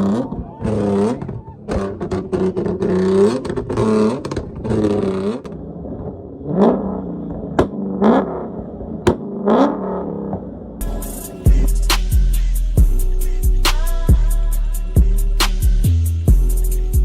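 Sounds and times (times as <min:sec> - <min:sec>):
car engine revving: 0:00.0 - 0:17.0
exhaust bangs: 0:00.0 - 0:17.0.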